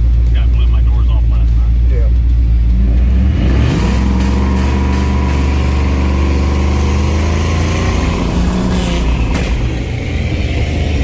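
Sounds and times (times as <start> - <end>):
truck engine revving: 0.0 - 11.0
sharp engine pops: 9.2 - 9.9.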